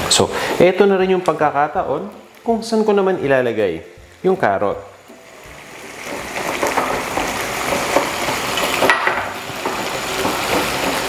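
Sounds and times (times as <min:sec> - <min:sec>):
meat and vegetables sizzling: 0:00.0 - 0:11.0
wooden spoon scraping a pan: 0:05.8 - 0:11.0.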